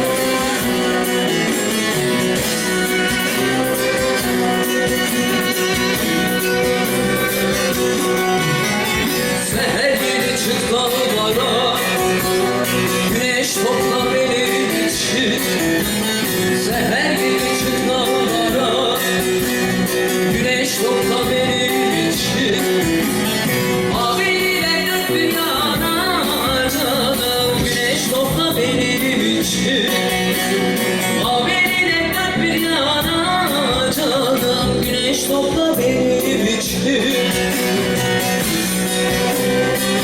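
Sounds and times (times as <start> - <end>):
woman singing: 0.0 - 6.0, 9.5 - 15.6, 16.6 - 19.3, 20.3 - 22.9, 23.9 - 30.4, 31.1 - 37.9
plucked string accompaniment: 0.0 - 40.0.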